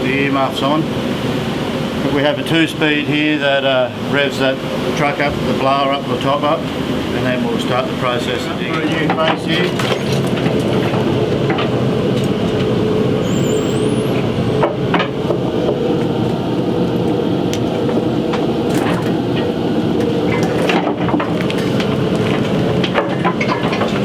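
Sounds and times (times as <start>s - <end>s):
blower machine droning: 0.0s - 24.0s
knocks and rattles: 20.3s - 24.0s.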